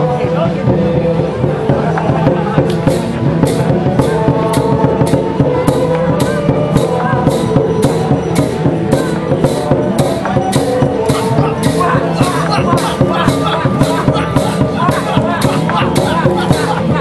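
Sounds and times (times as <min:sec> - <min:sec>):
dense drumming: 0:00.5 - 0:17.0.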